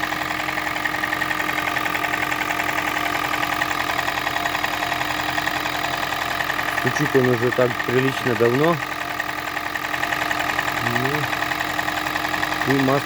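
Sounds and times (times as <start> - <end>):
car engine idling with knock: 0.0 - 13.0.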